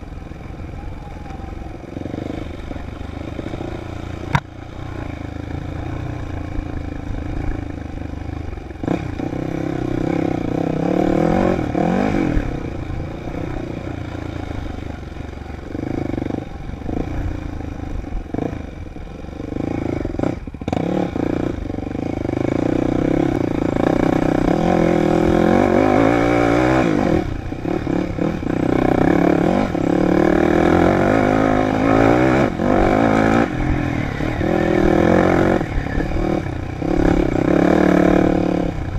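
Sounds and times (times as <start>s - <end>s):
dirt bike engine revving: 8.8s - 14.8s, 19.4s - 38.9s.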